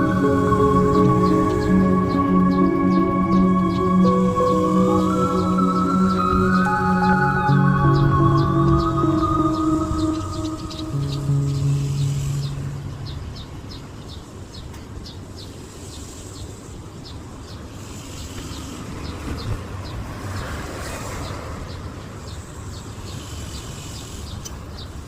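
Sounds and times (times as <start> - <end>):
small birds chirping: 0.0 - 20.5, 21.1 - 25.0.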